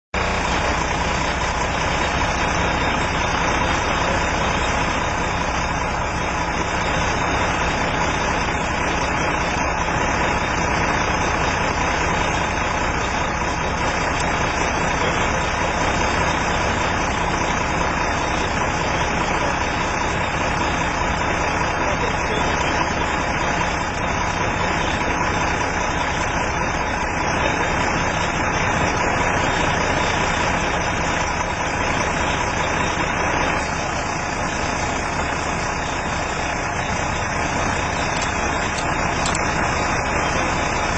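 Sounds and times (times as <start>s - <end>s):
vehicle engine idling: 0.2s - 40.9s.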